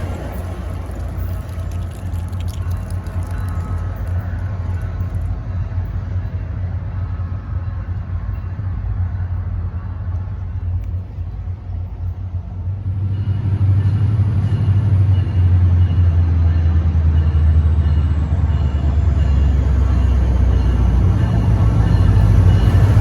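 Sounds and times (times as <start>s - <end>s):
low vehicle rumble: 0.0s - 7.5s.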